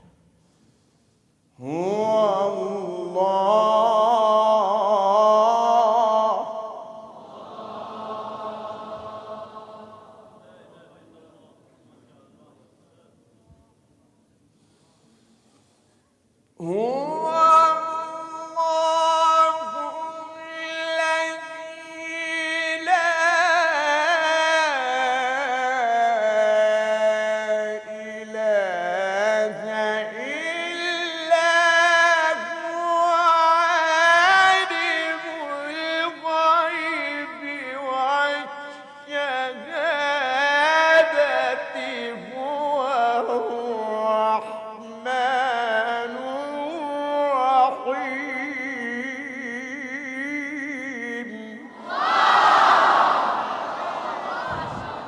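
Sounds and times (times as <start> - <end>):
man chanting melodically: 1.6 - 7.1, 16.6 - 51.8.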